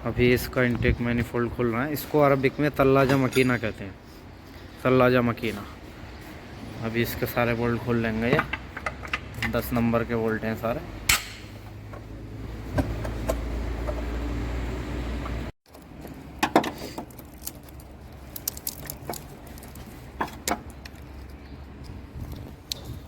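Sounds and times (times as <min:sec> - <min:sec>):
hand tools clinking on metal: 0:03.0 - 0:03.9.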